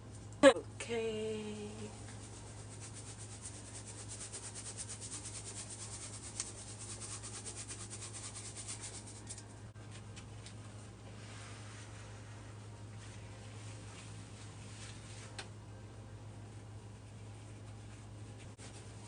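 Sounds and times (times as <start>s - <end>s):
steady low hum: 0.0s - 19.0s
hands rubbing wet paste: 2.0s - 9.5s.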